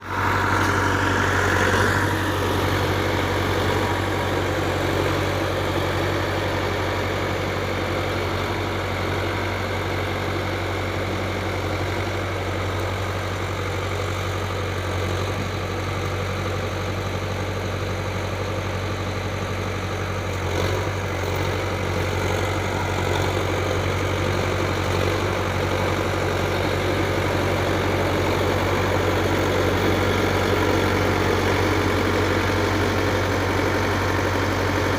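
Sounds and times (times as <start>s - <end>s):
tractor diesel engine idling: 0.0s - 34.9s.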